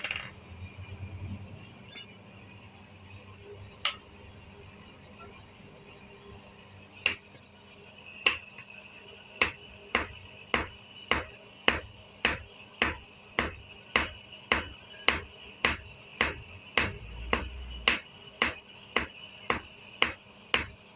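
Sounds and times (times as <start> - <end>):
hammer striking metal on anvil: 1.9 - 2.2, 9.4 - 20.7.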